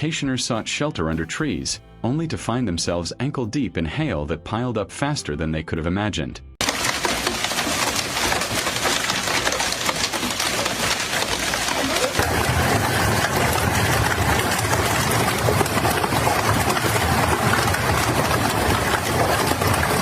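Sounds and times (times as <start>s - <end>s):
hailstones clattering: 6.6s - 20.0s.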